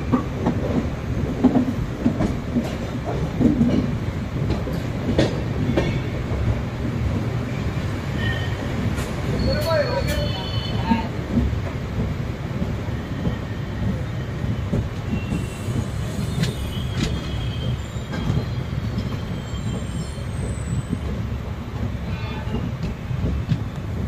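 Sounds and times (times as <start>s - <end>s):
train wheels rumbling on track: 0.0s - 24.0s
wheel squeal: 15.1s - 21.0s.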